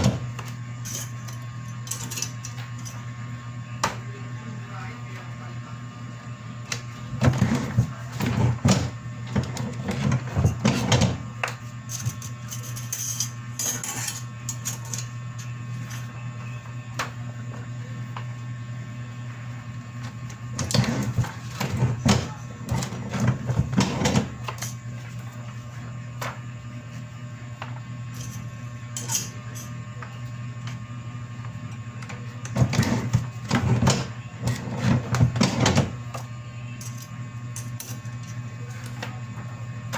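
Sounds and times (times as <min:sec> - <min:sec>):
printer humming: 0:00.0 - 0:00.8, 0:02.6 - 0:11.9, 0:15.1 - 0:37.5
printer mechanical clatter: 0:32.5 - 0:36.0.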